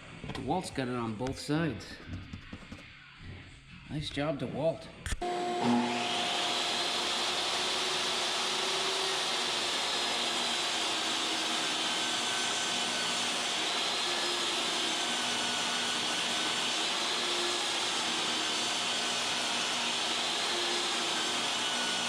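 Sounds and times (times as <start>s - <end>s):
power tool motor whirring: 5.2s - 22.0s.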